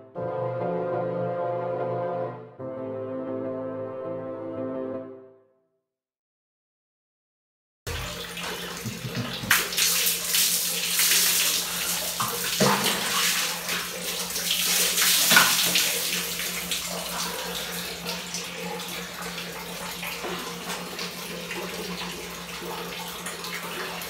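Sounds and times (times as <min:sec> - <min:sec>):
water splashing on tiled floor: 0:07.9 - 0:24.0.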